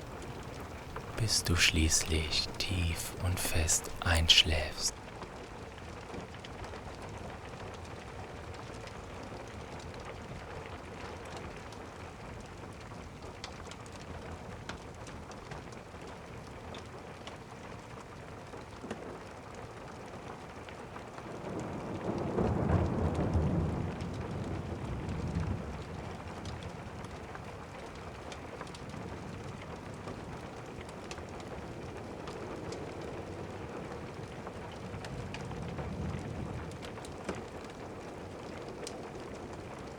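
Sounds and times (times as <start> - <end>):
steady rain: 0.0 - 4.9, 21.5 - 25.9.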